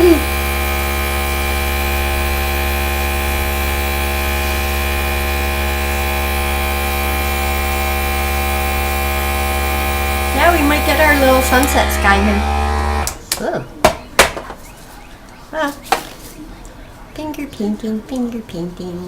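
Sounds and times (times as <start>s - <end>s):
electric air gun motor hum: 0.0s - 13.2s.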